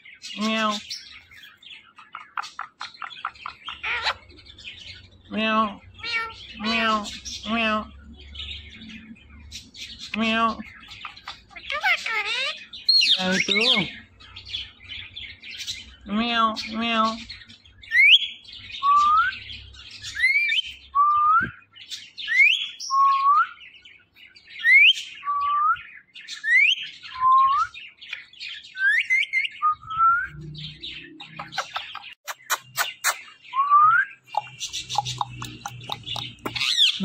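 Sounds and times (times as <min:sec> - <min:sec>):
parrot chirping: 0:00.3 - 0:20.9, 0:28.7 - 0:37.0.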